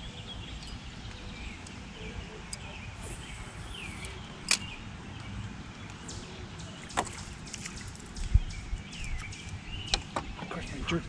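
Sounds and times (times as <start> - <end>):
birds chirping: 0.0 - 10.4
sharp clicks: 3.0 - 4.7.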